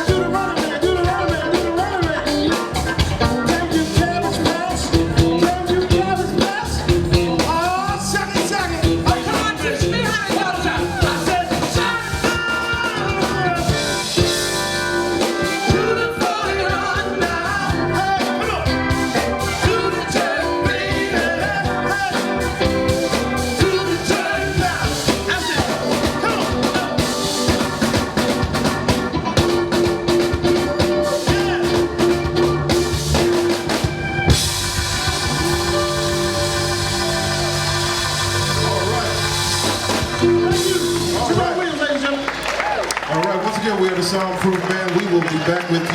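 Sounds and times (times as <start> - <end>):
person singing: 0.0 - 14.0, 15.1 - 27.5, 30.5 - 32.6
live band playing: 0.0 - 45.9.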